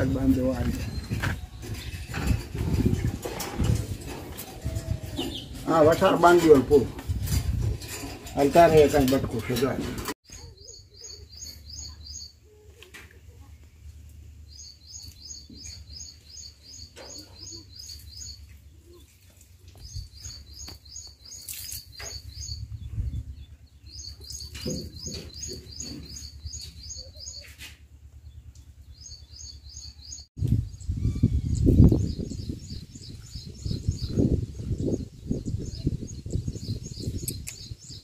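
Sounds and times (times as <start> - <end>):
bird chirping: 4.8 - 5.8, 10.3 - 12.5, 14.4 - 38.0.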